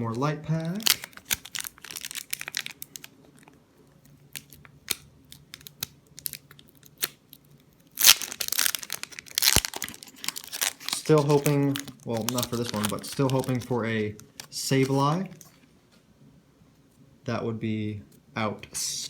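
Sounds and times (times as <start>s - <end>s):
foil pack crinkling: 0.5s - 15.6s
foil pack tearing: 0.8s - 3.1s, 7.9s - 13.8s.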